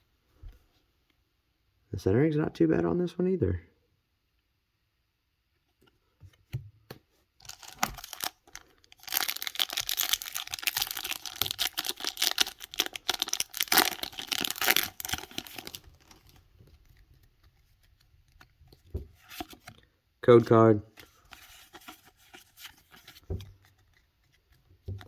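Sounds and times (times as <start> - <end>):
foil wrapper tearing and crinkling: 7.4 - 16.4.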